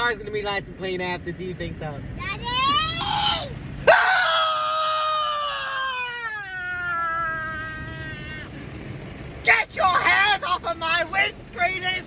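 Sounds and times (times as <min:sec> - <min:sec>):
person wailing: 0:03.0 - 0:08.5.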